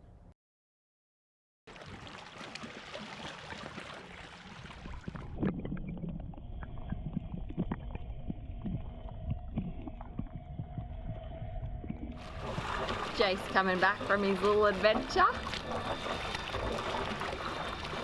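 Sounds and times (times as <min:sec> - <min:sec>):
water slapping against hull: 0:01.7 - 0:18.0
outboard motor running: 0:12.1 - 0:18.0.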